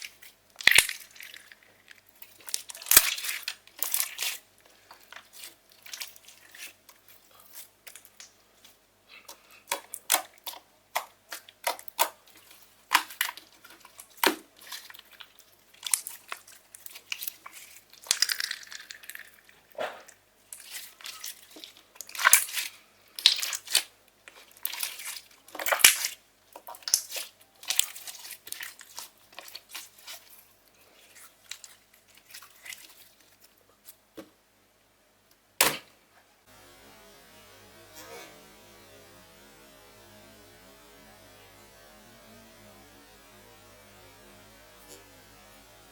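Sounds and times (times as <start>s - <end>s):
slime being kneaded by hand: 0.0s - 18.6s, 20.5s - 34.0s.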